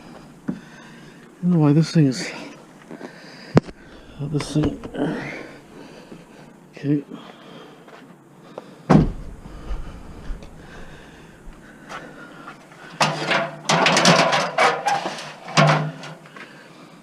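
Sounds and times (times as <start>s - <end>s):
scrap metal clattering in a van: 13.0s - 16.2s.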